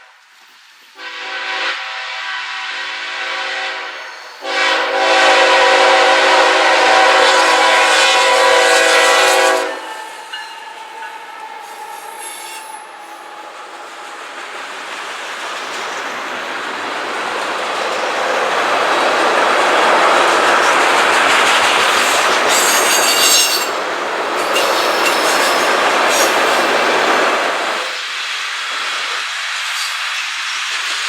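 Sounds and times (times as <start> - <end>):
train rumbling on rails: 0.0 - 31.0
locomotive air horn chord: 1.0 - 10.1.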